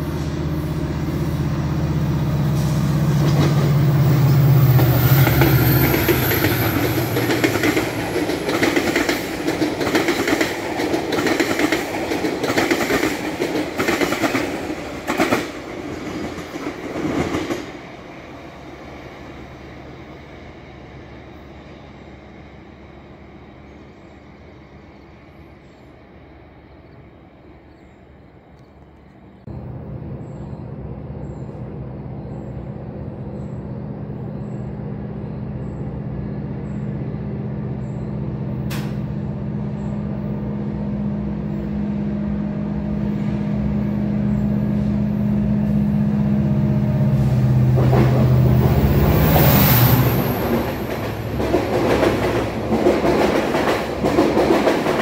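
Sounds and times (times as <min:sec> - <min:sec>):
diesel locomotive engine droning: 0:00.0 - 0:55.0
train wheels clacking: 0:03.2 - 0:17.8, 0:47.6 - 0:55.0.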